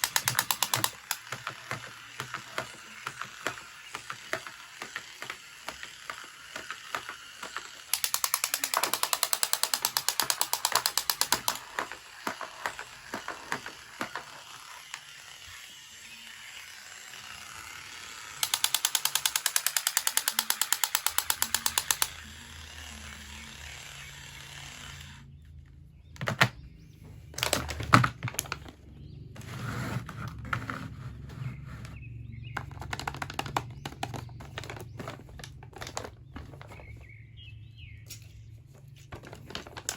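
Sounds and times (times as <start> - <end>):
rapid ratcheting clicks: 0.0 - 15.2, 17.4 - 22.2
knocks and handling clatter: 26.2 - 37.3, 38.1 - 39.9.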